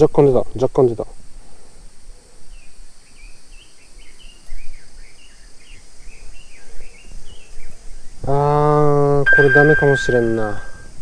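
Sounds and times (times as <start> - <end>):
outdoor background noise: 0.0 - 11.0
small bird twittering: 9.3 - 11.0.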